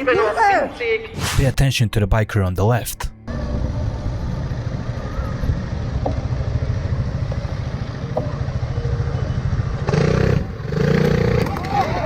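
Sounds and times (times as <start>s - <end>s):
road noise: 3.3s - 11.9s.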